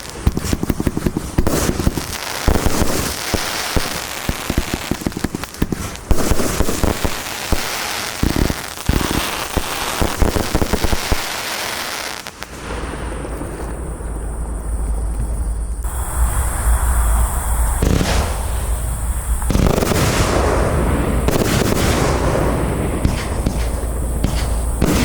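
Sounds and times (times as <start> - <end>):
fireworks bangs and crackling: 0.0 - 16.0, 16.8 - 25.0.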